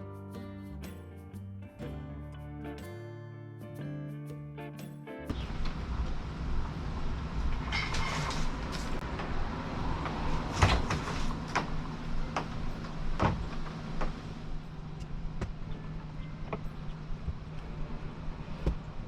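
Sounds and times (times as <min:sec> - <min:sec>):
knocks and clunks: 0:10.0 - 0:14.2, 0:15.0 - 0:17.6, 0:18.6 - 0:19.0.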